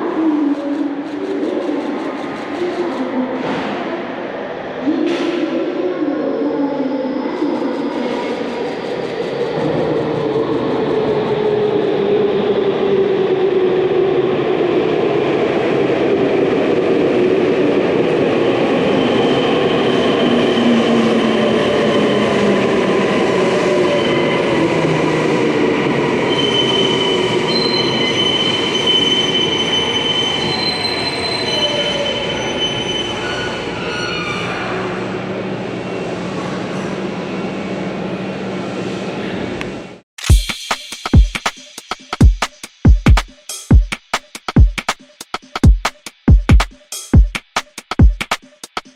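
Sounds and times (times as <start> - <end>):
wheel squeal: 26.3 - 34.9.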